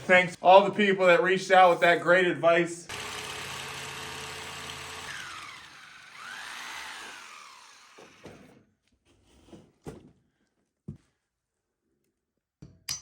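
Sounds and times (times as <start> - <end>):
hammer drill boring into concrete: 2.9 - 8.6.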